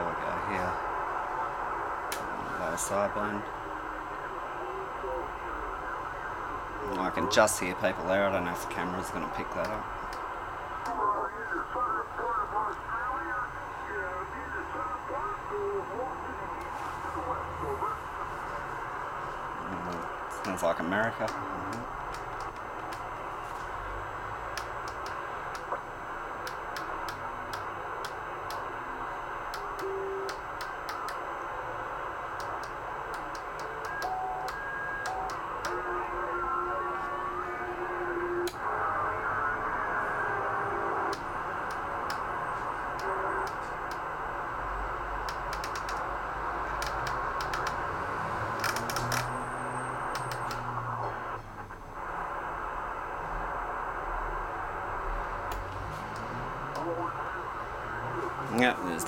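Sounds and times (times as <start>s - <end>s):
radio static hiss: 0.0s - 59.0s
sharp clicks: 21.2s - 23.1s, 24.5s - 25.8s, 26.4s - 28.7s, 29.5s - 31.2s, 32.4s - 35.8s, 42.9s - 44.0s, 45.2s - 46.1s, 46.8s - 47.8s, 48.5s - 49.3s, 50.1s - 50.7s, 55.5s - 56.9s.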